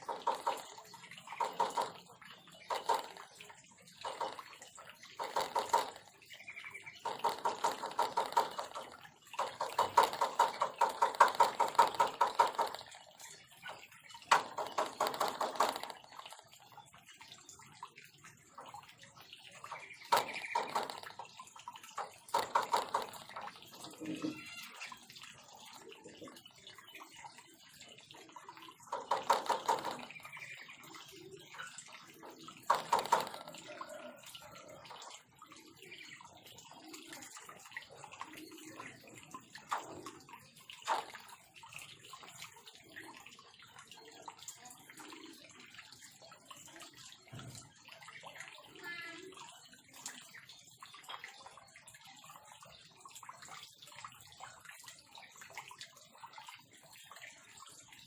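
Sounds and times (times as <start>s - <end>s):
birds calling in fast bursts: 0.0s - 43.4s.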